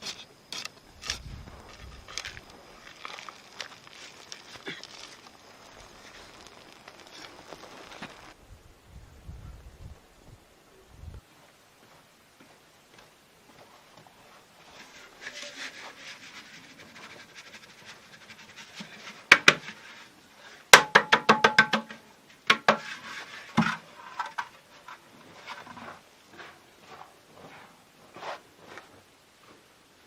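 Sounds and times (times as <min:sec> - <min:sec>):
sharp knocks: 0:20.8 - 0:22.8.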